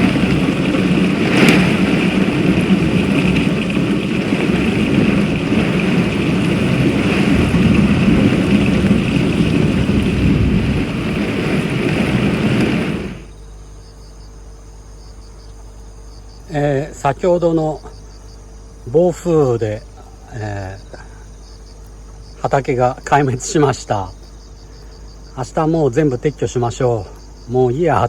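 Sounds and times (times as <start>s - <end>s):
sharp crack: 0.0s - 13.3s
faint steady background noise: 0.0s - 28.0s
torrential rain and wind: 0.0s - 28.0s.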